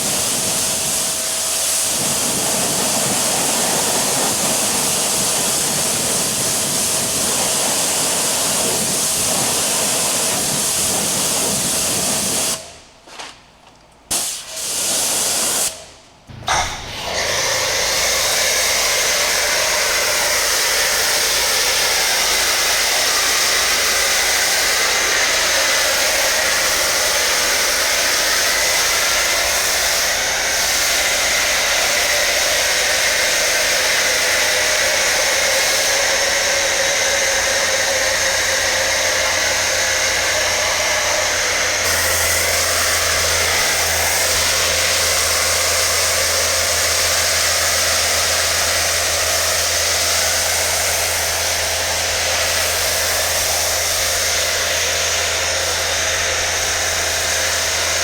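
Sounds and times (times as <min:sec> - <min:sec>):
electric blower rushing air: 0:00.0 - 0:12.8, 0:15.0 - 0:58.0
low hum: 0:16.3 - 0:22.8.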